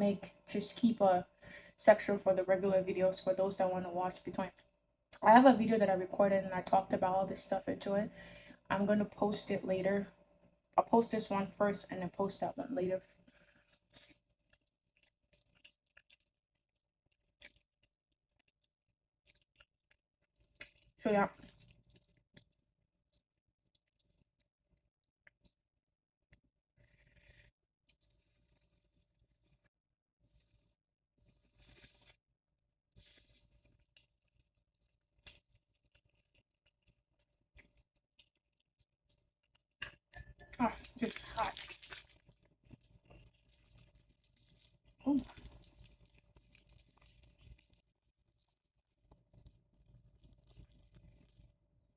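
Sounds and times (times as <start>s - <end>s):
wet mouth clicks chewing noodles: 13.3s - 25.6s, 33.0s - 40.1s, 40.8s - 51.6s.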